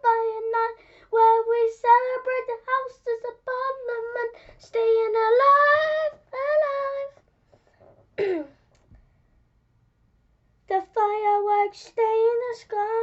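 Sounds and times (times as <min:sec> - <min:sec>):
child singing: 0:00.0 - 0:07.2, 0:10.7 - 0:13.0.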